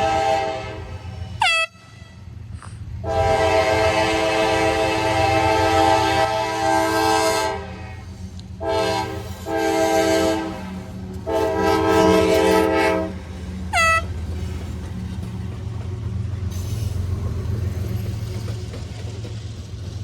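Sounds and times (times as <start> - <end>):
locomotive air horn blasts: 0.0 - 2.2, 3.0 - 8.0, 8.6 - 14.2
passing train rumble: 0.0 - 20.0.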